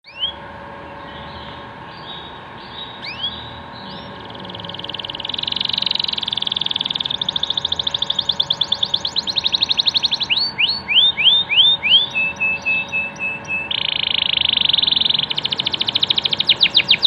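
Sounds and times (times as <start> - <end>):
canary fast rolling trill: 2.9 - 17.0
canary rising whistles: 4.0 - 17.0.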